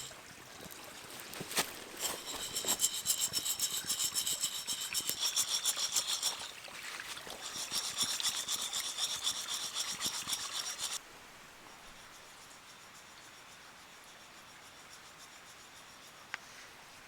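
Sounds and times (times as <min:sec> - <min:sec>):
fast rhythmic rasping scrape: 0:01.3 - 0:11.0.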